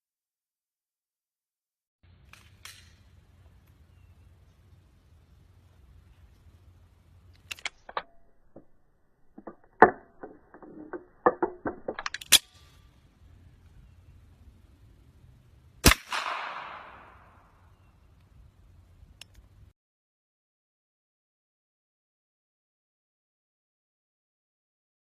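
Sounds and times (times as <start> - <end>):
pistol metallic clicks: 2.2 - 3.8, 7.2 - 12.9, 15.8 - 17.6
gunshot bang: 15.8 - 17.3.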